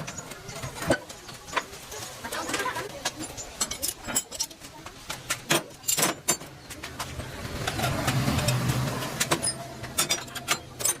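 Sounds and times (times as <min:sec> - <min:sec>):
sharp clicks and clinks: 0:03.0 - 0:11.0.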